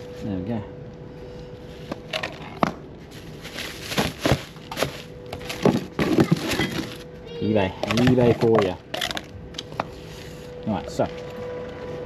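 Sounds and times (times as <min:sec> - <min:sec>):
knocks and clunks of car parts: 0:04.0 - 0:06.9.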